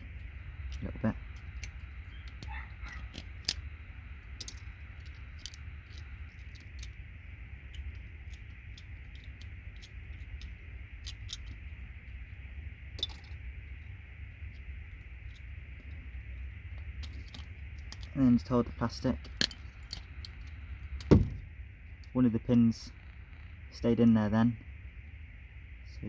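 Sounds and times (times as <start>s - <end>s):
plastic connector parts handled: 0.0s - 7.0s, 7.6s - 11.6s
steady low hum: 0.0s - 26.0s
small clicks of metal pins: 4.3s - 7.0s, 7.7s - 11.6s.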